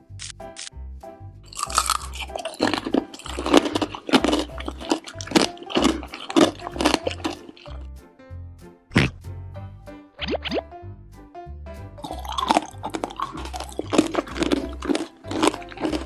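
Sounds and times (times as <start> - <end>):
bouncy children's music: 0.0 - 16.0
crunching and chewing candy: 1.5 - 7.8, 12.0 - 16.0.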